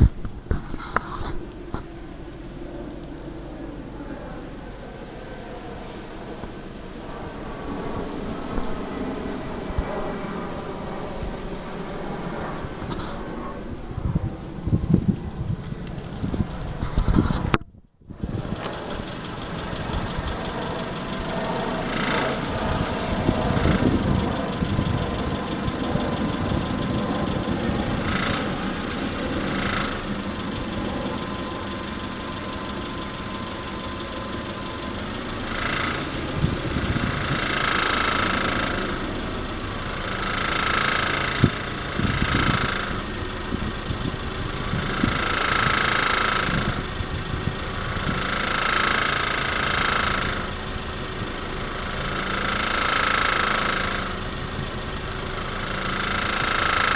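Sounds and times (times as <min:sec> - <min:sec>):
rattle: 0:00.0 - 0:04.6, 0:14.5 - 0:17.6, 0:18.2 - 0:56.9
car engine at low revs: 0:00.0 - 0:56.9.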